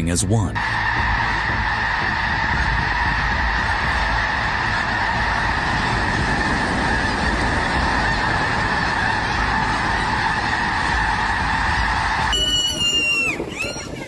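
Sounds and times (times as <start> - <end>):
flock of geese honking: 0.6 - 14.0.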